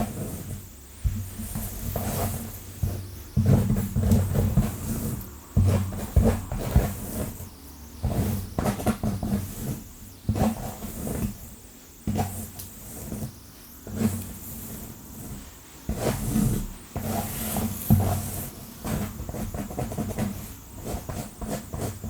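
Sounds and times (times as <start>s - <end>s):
fingernails scratching hair: 0.0s - 11.4s.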